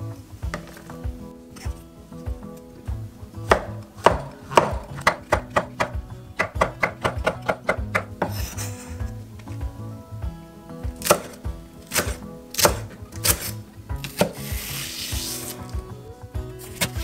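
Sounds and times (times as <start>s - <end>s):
cleaver knocking on wooden block: 3.5s - 8.4s
knife slicing through onion: 8.0s - 9.1s, 11.0s - 15.8s, 16.6s - 17.0s.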